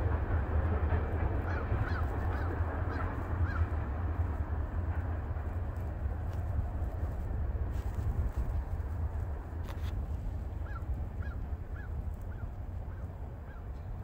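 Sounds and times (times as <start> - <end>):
distant freight train rumble: 0.0 - 14.0.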